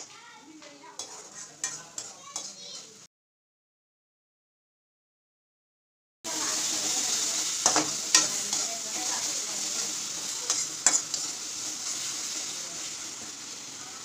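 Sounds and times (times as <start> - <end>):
paste sizzling in hot oil: 0.0 - 3.1, 6.3 - 14.0
metal spatula scraping pan: 0.9 - 3.0, 6.3 - 12.5.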